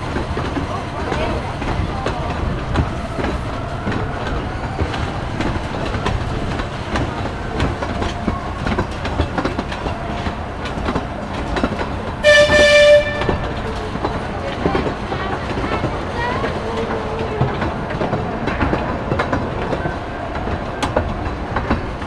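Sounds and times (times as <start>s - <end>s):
small train wheels rumbling and clicking: 0.0s - 22.0s
train horn blast: 12.2s - 13.7s.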